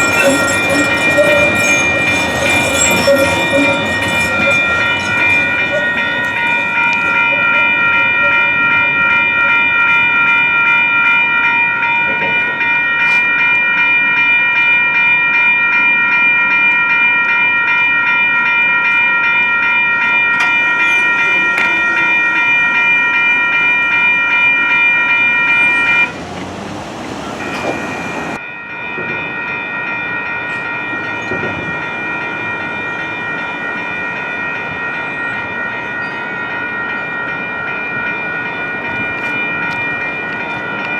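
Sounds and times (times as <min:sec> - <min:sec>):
crossing warning bells ringing: 0:00.0 - 0:40.9.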